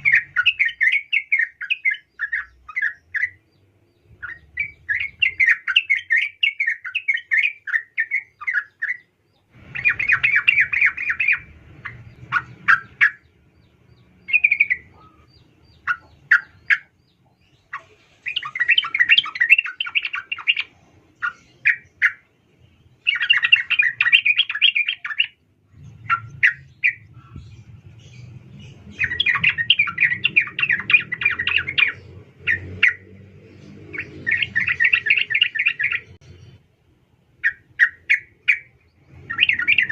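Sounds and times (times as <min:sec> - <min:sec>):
bird chattering calls: 0:04.2 - 0:22.3, 0:23.0 - 0:33.1, 0:33.9 - 0:36.2.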